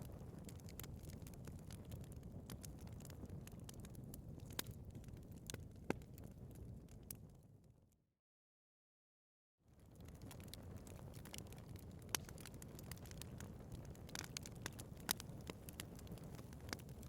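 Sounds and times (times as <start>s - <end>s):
fire flames rumbling: 0.0s - 7.4s, 9.7s - 17.0s
fire crackles and pops: 0.0s - 7.6s, 9.7s - 17.0s.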